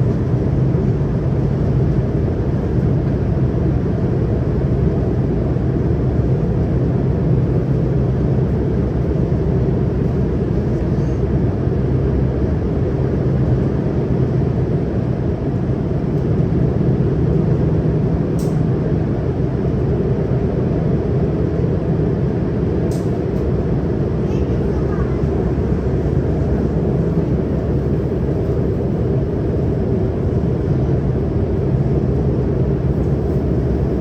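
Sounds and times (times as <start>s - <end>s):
train wheels rumbling on rail: 18.2s - 34.0s.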